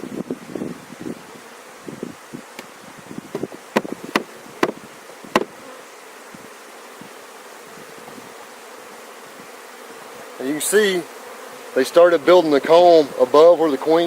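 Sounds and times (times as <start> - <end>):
honeybees buzzing: 0.0 - 14.0
sharp knocks on hive: 3.3 - 5.8.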